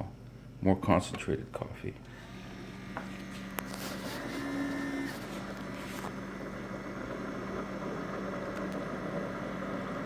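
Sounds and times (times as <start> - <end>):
coffee maker mechanical whirring: 2.0 - 10.0.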